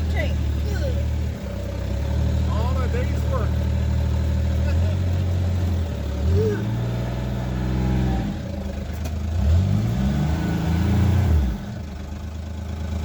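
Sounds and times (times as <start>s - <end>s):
small vehicle engine revving: 0.0s - 13.0s.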